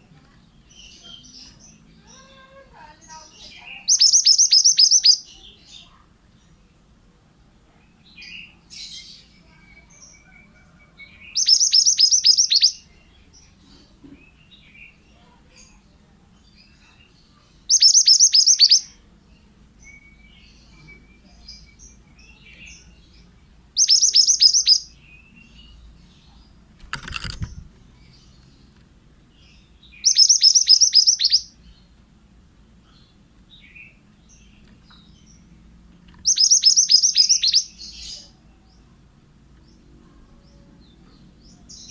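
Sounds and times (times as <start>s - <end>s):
faint bird chirps: 0.0s - 6.7s, 7.7s - 28.8s, 29.4s - 31.9s, 36.1s - 39.0s
bird singing falling notes: 36.1s - 37.7s.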